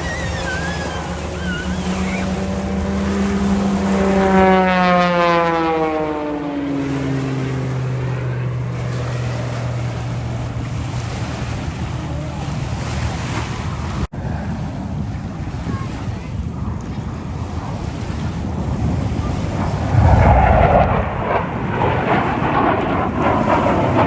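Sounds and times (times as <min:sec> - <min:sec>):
engine passing by: 0:00.0 - 0:14.6, 0:17.4 - 0:24.0
waves rushing: 0:00.0 - 0:24.0
wind: 0:00.0 - 0:24.0.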